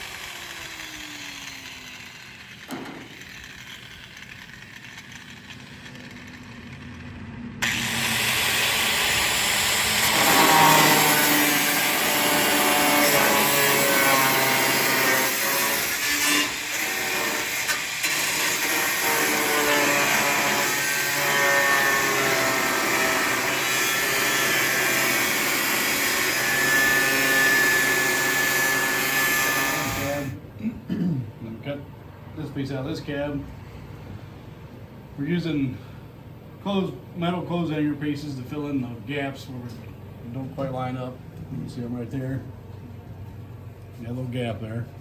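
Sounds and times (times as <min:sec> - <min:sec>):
power tool cutting sheet metal: 0:00.0 - 0:30.4.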